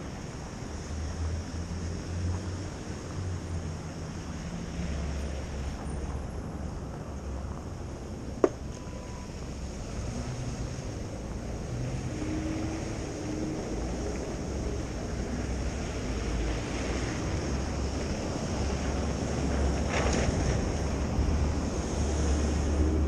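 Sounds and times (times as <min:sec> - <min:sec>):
low rumble of city traffic: 0:00.0 - 0:23.0.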